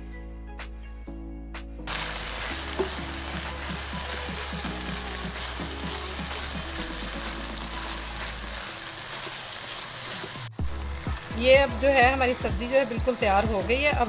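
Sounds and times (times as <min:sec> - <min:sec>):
background music: 0:00.0 - 0:14.0
spatula stirring in wok: 0:01.9 - 0:11.2
food sizzling in a wok: 0:01.9 - 0:14.0.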